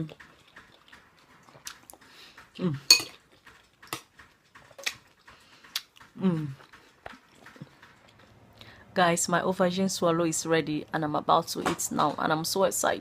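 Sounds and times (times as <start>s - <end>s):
dishes and cutlery clinking: 2.8s - 5.0s.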